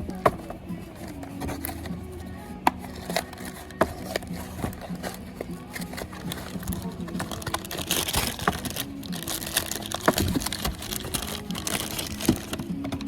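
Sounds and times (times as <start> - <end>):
metal parts and tools clinking: 0.0 - 13.0.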